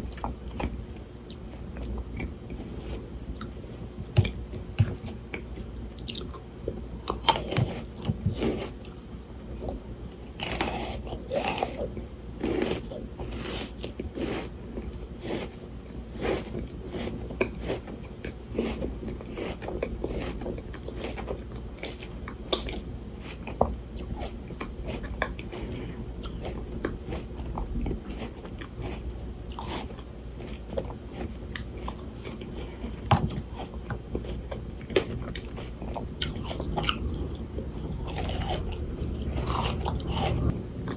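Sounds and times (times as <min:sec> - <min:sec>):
chewing: 0:00.0 - 0:40.9
icy crunching of frozen grapes: 0:07.0 - 0:09.0, 0:09.6 - 0:14.5, 0:31.9 - 0:40.5.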